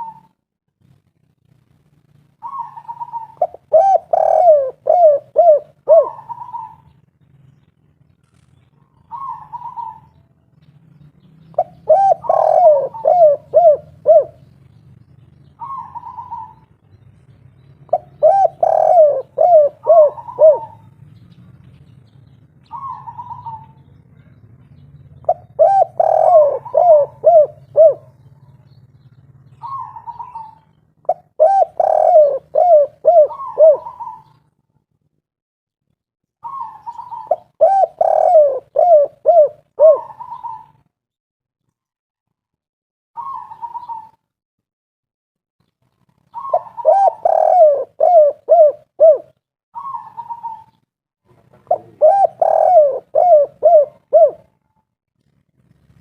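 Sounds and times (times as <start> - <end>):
dove cooing: 0.0 - 0.4, 2.4 - 7.0, 8.8 - 10.2, 11.5 - 14.6, 15.5 - 16.7, 17.9 - 21.0, 22.6 - 24.4, 25.1 - 28.8, 29.4 - 34.5, 36.4 - 40.9, 43.2 - 44.2, 46.3 - 54.6.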